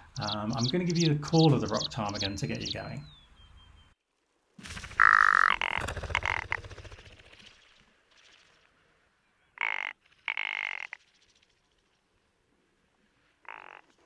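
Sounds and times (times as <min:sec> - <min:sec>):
bird rattling croak: 0:04.7 - 0:07.6, 0:09.6 - 0:11.1, 0:13.4 - 0:14.0
bird harsh croaks: 0:04.8 - 0:07.4, 0:09.6 - 0:11.0, 0:13.4 - 0:14.0.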